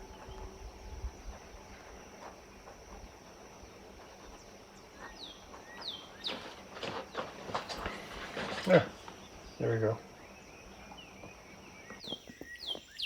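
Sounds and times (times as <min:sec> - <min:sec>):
high-pitched insect drone: 0:00.0 - 0:13.0
bird chirps: 0:03.5 - 0:07.2, 0:09.1 - 0:13.0.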